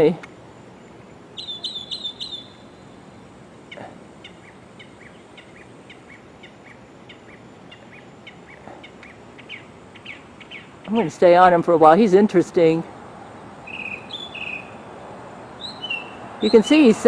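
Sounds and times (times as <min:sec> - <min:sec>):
songbird whistled notes: 0:01.4 - 0:02.9, 0:13.6 - 0:14.8, 0:15.6 - 0:16.7.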